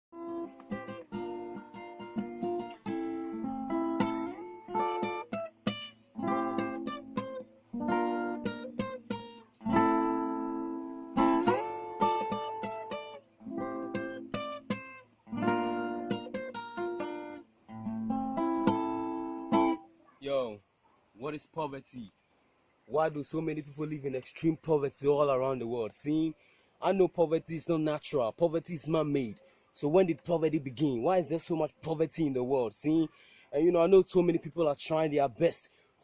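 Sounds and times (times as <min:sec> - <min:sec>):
acoustic guitar strumming chords: 0:00.2 - 0:19.9.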